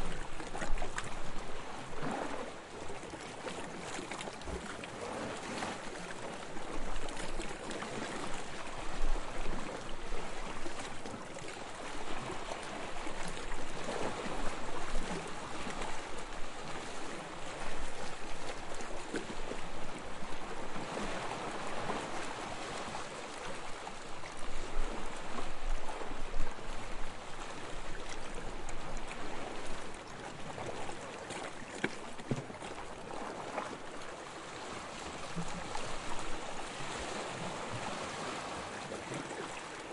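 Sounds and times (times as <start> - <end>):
small waves lapping on sand: 0.0 - 39.9.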